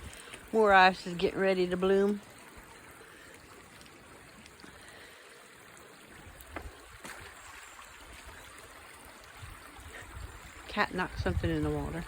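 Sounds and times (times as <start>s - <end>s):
wind buffeting microphone: 9.2s - 12.0s.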